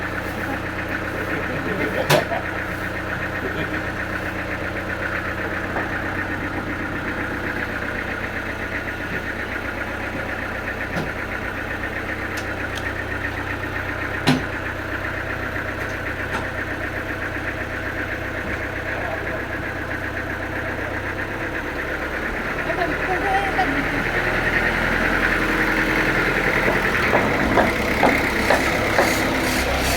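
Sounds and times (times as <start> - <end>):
sawmill engine running: 0.0 - 29.9.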